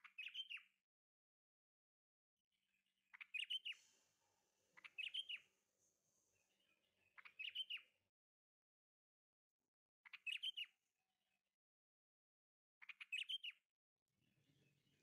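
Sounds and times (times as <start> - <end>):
small bird chirping: 0.0 - 0.8, 3.1 - 8.0, 10.0 - 10.8, 12.8 - 13.7.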